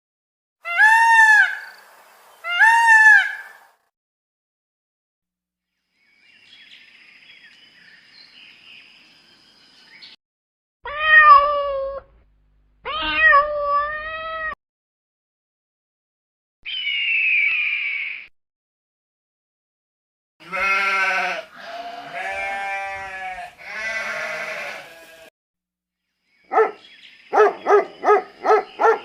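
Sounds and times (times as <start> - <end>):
cat meowing: 10.9 - 12.1, 12.9 - 14.6, 20.5 - 25.1
faint high-pitched chirping: 26.0 - 29.0.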